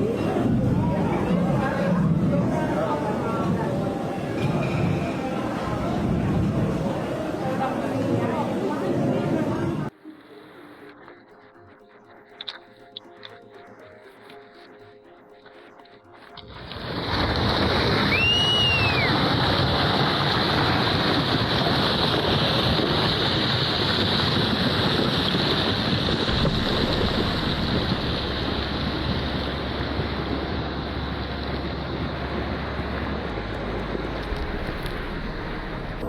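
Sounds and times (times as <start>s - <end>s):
wind buffeting microphone: 0.0s - 9.9s, 16.8s - 36.0s
surf rushing: 16.5s - 36.0s
rising and falling whistle: 18.0s - 19.5s.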